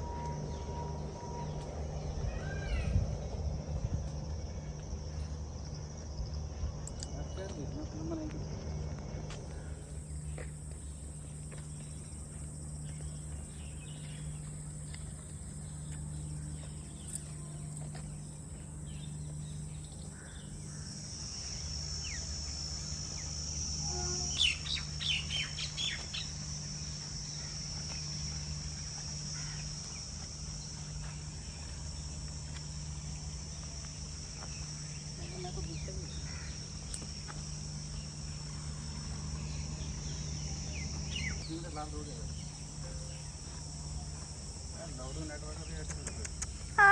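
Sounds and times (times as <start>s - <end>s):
high-pitched insect drone: 0.0s - 46.9s
low steady hum: 0.0s - 46.9s
bird chirps: 23.9s - 26.4s, 39.4s - 43.3s.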